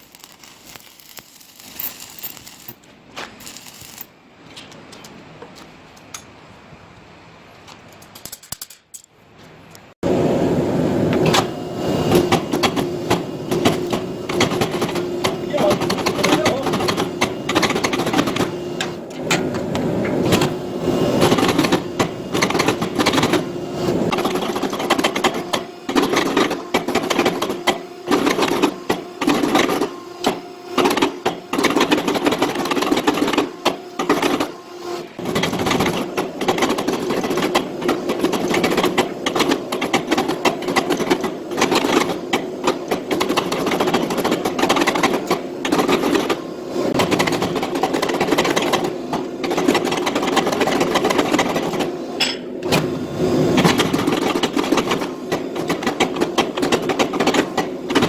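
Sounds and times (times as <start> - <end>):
machine humming: 10.0 - 58.0
machine knocking and clattering: 11.2 - 34.6, 35.2 - 58.0.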